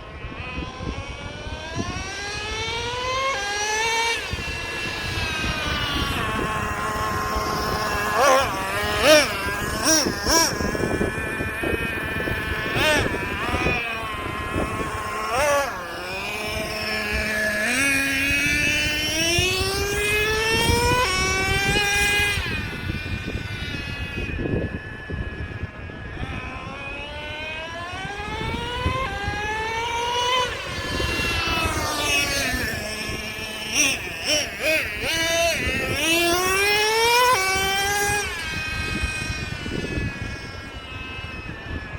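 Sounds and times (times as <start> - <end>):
nitro engine whining: 0.0 - 41.9.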